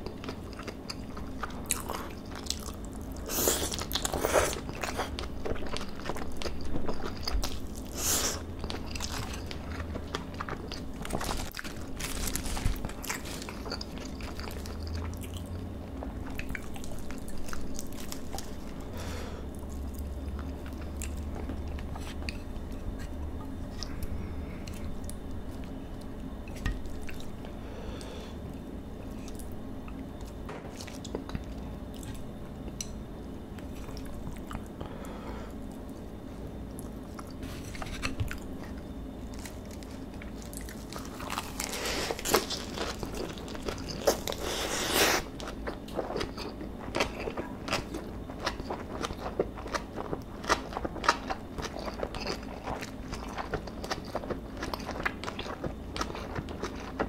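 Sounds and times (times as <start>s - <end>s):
person chewing: 0.0s - 28.3s, 36.8s - 57.0s
lettuce rustling: 8.9s - 14.9s.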